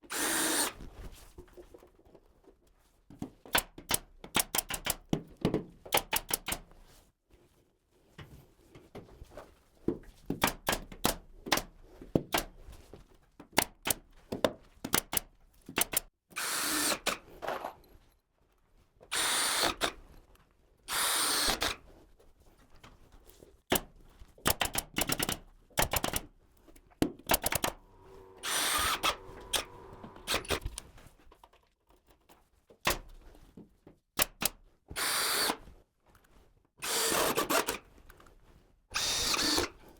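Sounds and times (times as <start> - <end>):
power drill running in bursts: 0.1 - 0.8, 27.6 - 30.7
tool clicks and knocks: 27.1 - 27.8.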